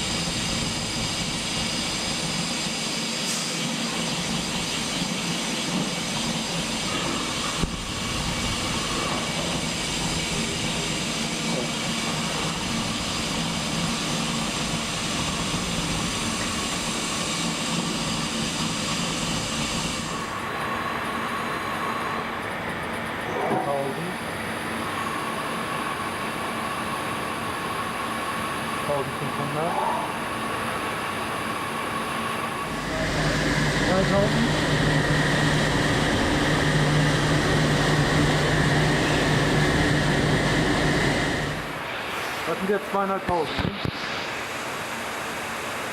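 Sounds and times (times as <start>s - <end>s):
spindle high whine: 0.0s - 42.0s
machine hum: 4.0s - 42.0s.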